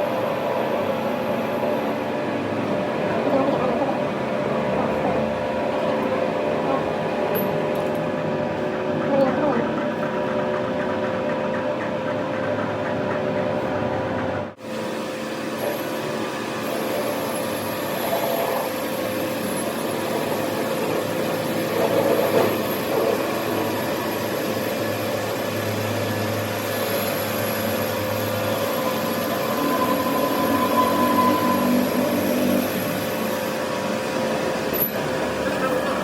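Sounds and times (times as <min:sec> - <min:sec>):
machinery hum: 0:00.0 - 0:36.0
high whine: 0:25.0 - 0:36.0.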